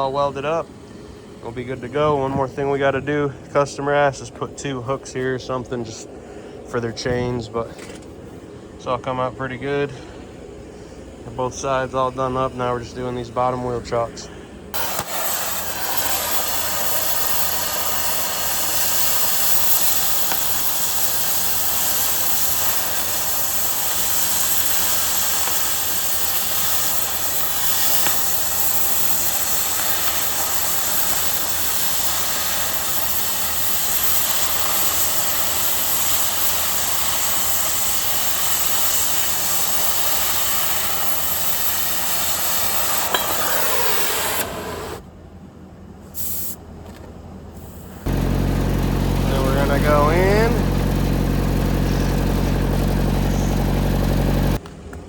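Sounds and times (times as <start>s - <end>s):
angle grinder grinding steel: 14.8s - 45.0s, 48.1s - 54.6s.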